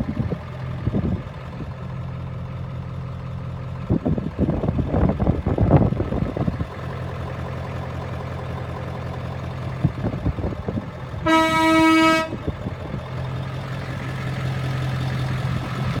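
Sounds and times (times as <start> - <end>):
truck engine idling: 0.0 - 16.0
vehicle horn: 11.2 - 12.5.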